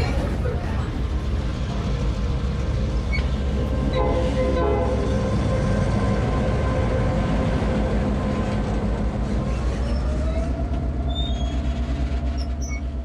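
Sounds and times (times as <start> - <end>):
train wheels rumbling on rail: 0.0 - 13.0
faint wheel squeal: 11.1 - 13.0.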